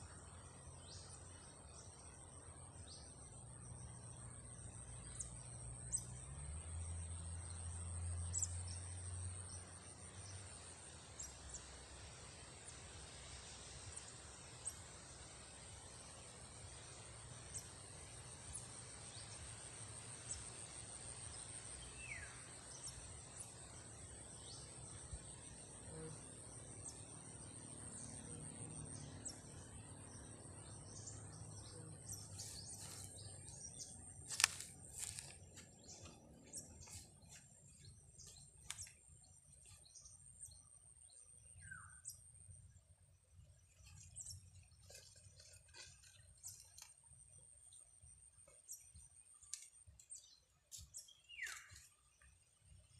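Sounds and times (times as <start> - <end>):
bird chirps: 28.0 - 42.5, 48.4 - 52.3.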